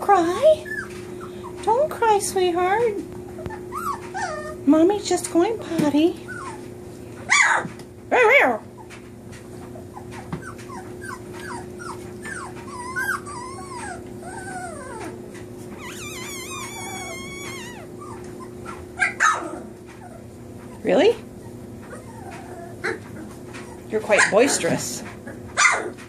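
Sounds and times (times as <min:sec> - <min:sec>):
puppies whimpering and squealing: 0:00.1 - 0:05.4, 0:06.1 - 0:26.0
puppies yelping: 0:00.4 - 0:02.0, 0:03.2 - 0:04.7, 0:06.2 - 0:07.7, 0:09.6 - 0:24.7, 0:25.3 - 0:26.0.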